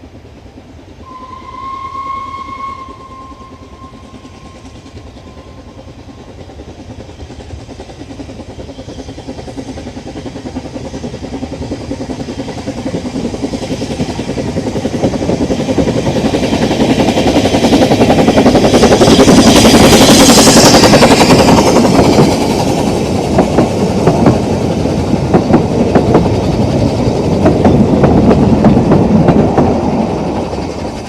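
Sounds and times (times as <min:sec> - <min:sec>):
steam locomotive chuffing: 0:00.2 - 0:31.0
high train whistle: 0:01.0 - 0:06.3.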